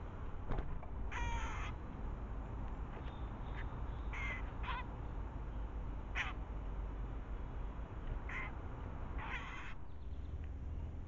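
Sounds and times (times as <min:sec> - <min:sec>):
harsh crow-like bird calls: 0:01.0 - 0:01.8, 0:03.1 - 0:04.9, 0:06.1 - 0:06.4, 0:08.2 - 0:08.6, 0:09.2 - 0:10.3.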